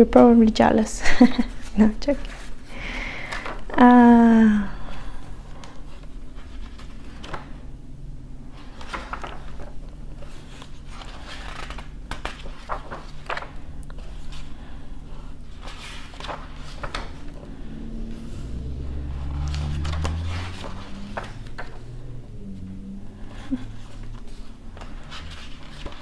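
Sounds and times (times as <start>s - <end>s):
faint low hum: 0.0s - 26.0s
book pages turning: 5.6s - 7.6s, 8.5s - 17.6s, 23.3s - 26.0s.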